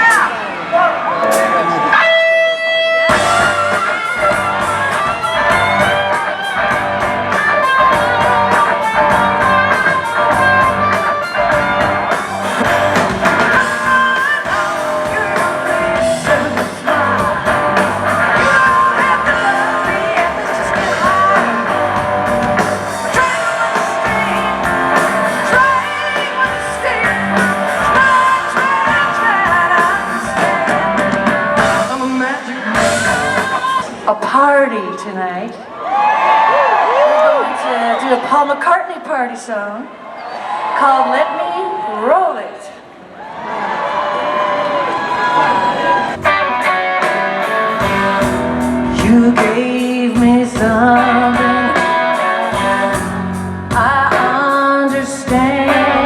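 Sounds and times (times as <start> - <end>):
drums: 0.0 - 56.0
electric guitar: 1.2 - 34.2, 44.3 - 56.0
person singing: 3.1 - 34.0, 46.2 - 56.0.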